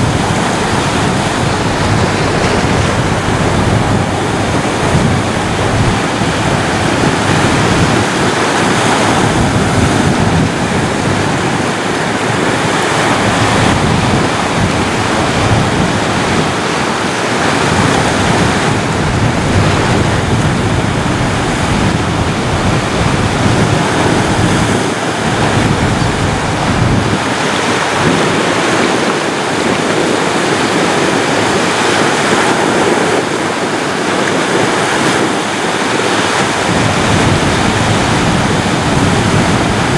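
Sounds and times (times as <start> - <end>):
waves breaking on a beach: 0.0 - 39.9.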